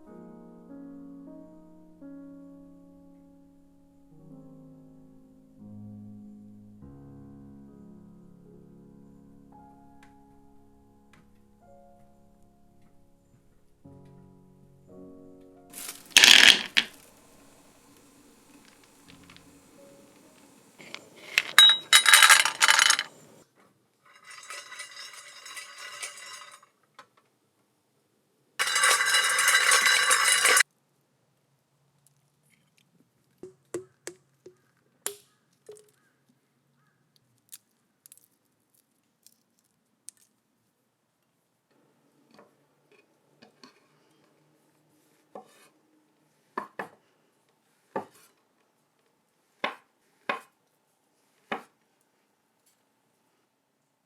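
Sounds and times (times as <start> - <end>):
utensils clinking and tapping: 15.8 - 17.0, 19.0 - 23.4, 24.1 - 26.6, 28.6 - 30.6.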